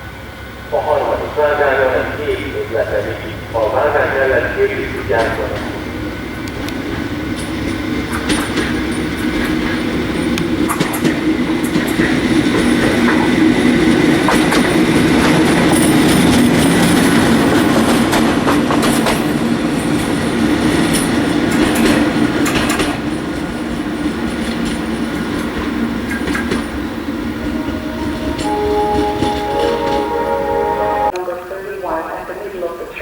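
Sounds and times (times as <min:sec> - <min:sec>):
train rumble: 0:00.0 - 0:31.2
train wheels clicking over rail joints: 0:05.0 - 0:27.8.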